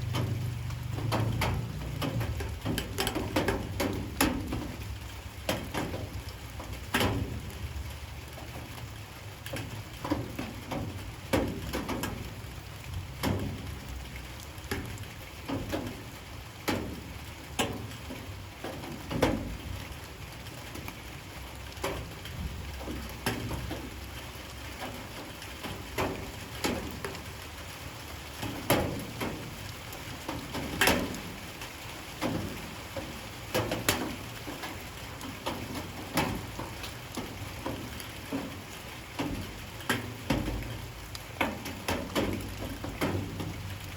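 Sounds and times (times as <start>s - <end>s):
raindrops tapping hard surface: 0.0s - 43.9s.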